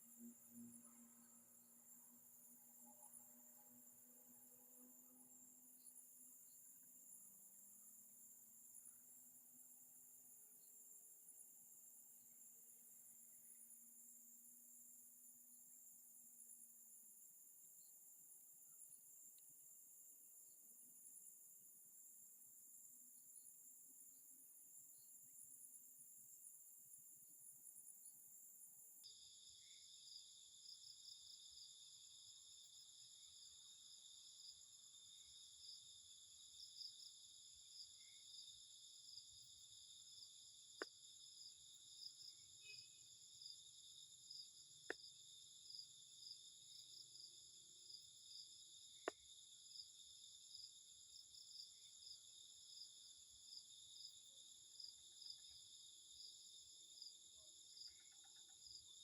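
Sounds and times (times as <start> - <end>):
insects chirring: 27.6 - 59.0.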